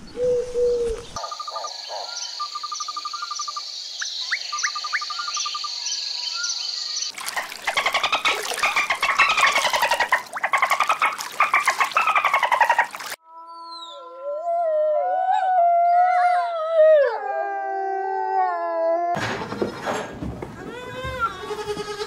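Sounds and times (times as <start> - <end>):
birds chirping and trilling: 0.0 - 14.2
dolphin clicking and whistling: 7.6 - 13.2
wolf howling: 13.4 - 19.2.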